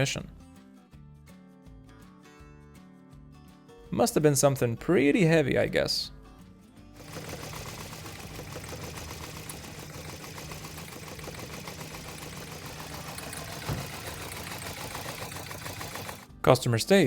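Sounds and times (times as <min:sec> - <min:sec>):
truck engine rattling clatter: 0:07.0 - 0:16.2
dull thump: 0:13.4 - 0:14.4.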